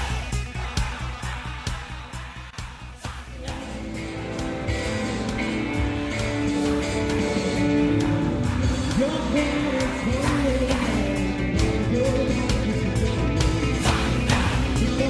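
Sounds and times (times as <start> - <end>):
electric guitar lead line: 3.3 - 15.0.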